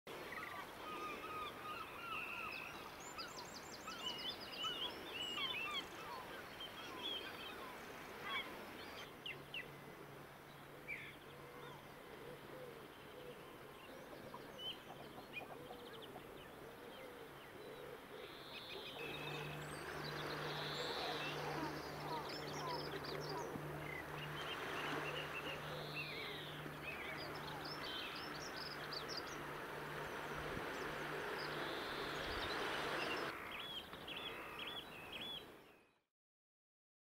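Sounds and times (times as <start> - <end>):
outdoor background noise: 0.1 - 35.8
bird calls and chirps: 0.2 - 9.9, 10.5 - 36.0
low steady hum: 6.8 - 33.4.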